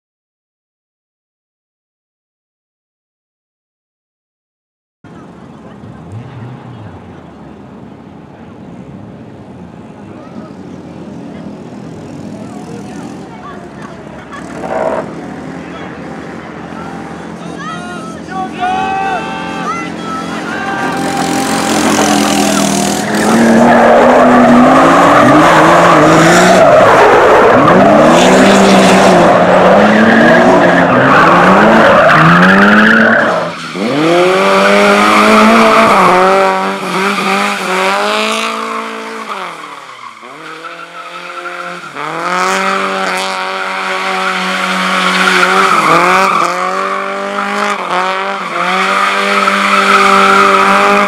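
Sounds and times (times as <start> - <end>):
race car engine revving: 10.3 - 17.6, 18.2 - 51.0.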